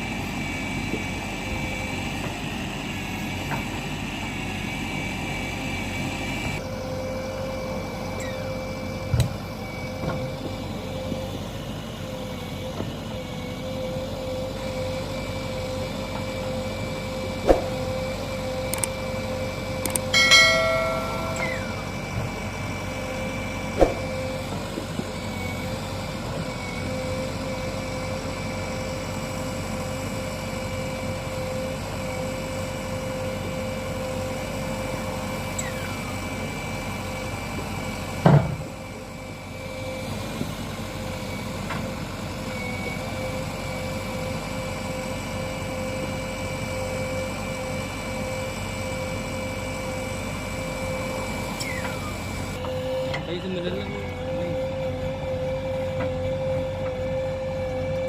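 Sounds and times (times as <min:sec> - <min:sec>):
diesel engine running with whine: 0:00.0 - 0:58.0
brief ringing tone: 0:19.9 - 0:22.3.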